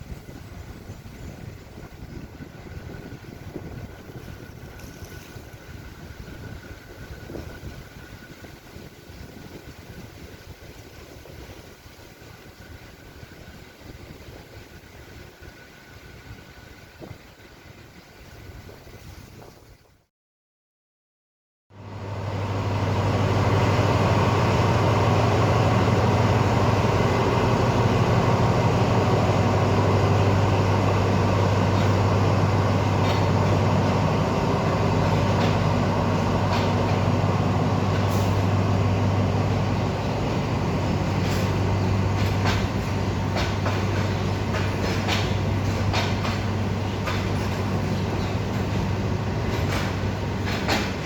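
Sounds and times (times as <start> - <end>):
diesel train droning: 0.0 - 18.7, 21.7 - 51.0
sharp clicks and knocks: 42.2 - 47.7, 49.5 - 51.0.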